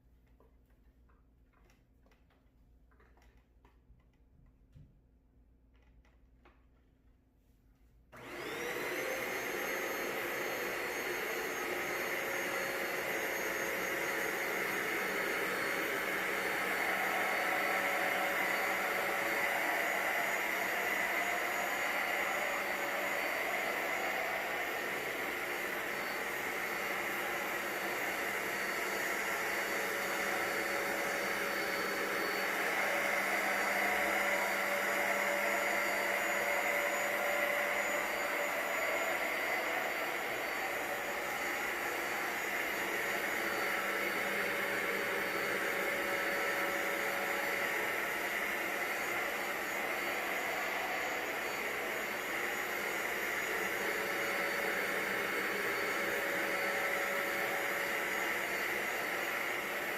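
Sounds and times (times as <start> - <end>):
carpet cleaner motor whine: 8.1 - 59.9.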